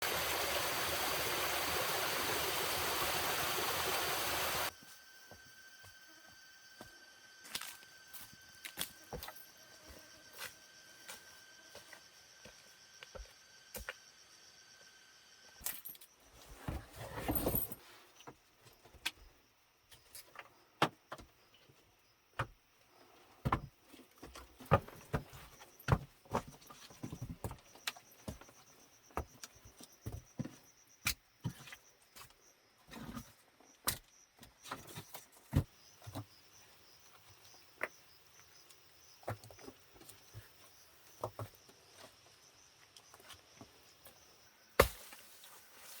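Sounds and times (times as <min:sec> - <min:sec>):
high-pitched insect calls: 0:00.2 - 0:16.3, 0:35.1 - 0:46.0.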